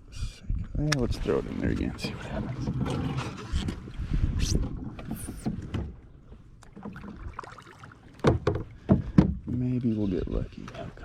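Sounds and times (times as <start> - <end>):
reel and handling noise: 1.0 - 4.0
knocks against kayak: 8.2 - 9.6.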